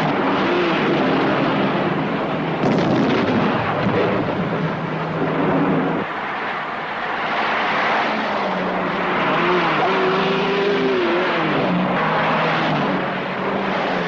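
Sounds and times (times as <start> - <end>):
dense rushing noise: 0.0 - 14.0
car engine revving: 7.1 - 14.0.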